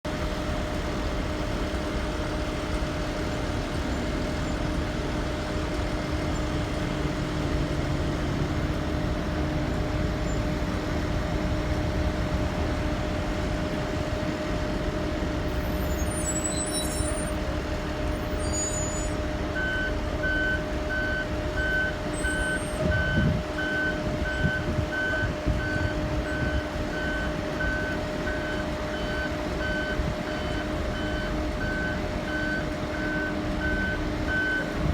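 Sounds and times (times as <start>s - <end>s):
bus engine running: 0.0s - 34.9s
reverse alarm beeping: 18.3s - 34.7s.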